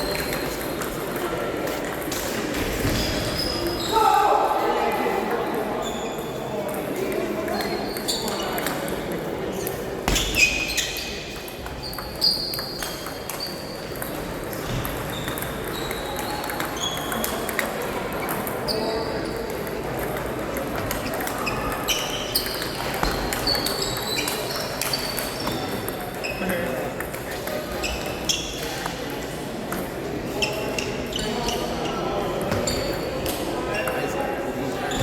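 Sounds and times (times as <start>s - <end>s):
murmur of voices: 0.0s - 35.0s
shoes squeaking on floor: 5.8s - 6.6s, 7.5s - 8.8s, 9.6s - 17.6s, 21.0s - 26.6s, 34.8s - 35.0s.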